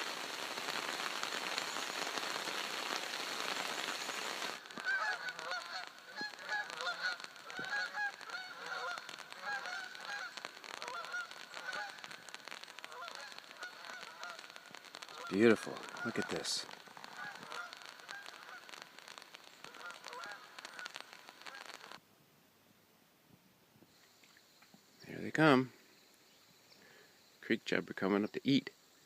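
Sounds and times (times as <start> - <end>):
steady rain falling: 0.0 - 22.0
birds honking: 3.4 - 21.9.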